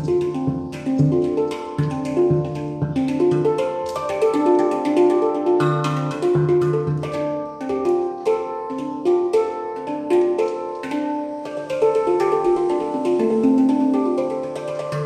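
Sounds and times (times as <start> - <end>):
handpan melody: 0.0 - 15.0.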